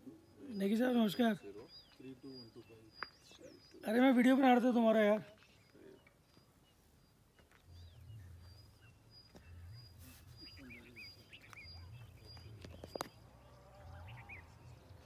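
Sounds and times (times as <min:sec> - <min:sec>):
low uneven rumble: 0:09.4 - 0:15.0.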